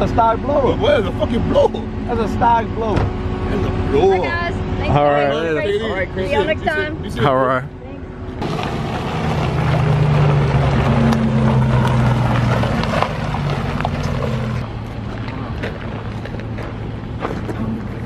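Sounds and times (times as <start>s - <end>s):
vehicle engine droning: 0.0s - 18.0s.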